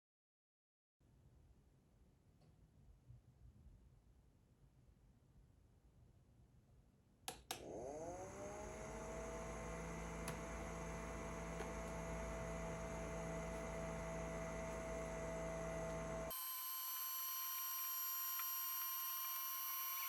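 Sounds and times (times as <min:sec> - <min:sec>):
clicks: 0:07.3 - 0:07.7, 0:10.1 - 0:10.7
electric motor humming: 0:07.6 - 0:20.0.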